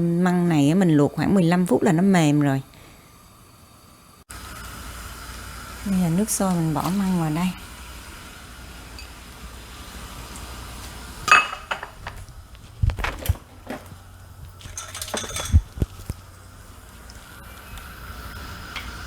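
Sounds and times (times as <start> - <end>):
boiling water: 0.0 - 19.0
metal pot and utensils clinking: 11.3 - 12.0, 14.6 - 15.8.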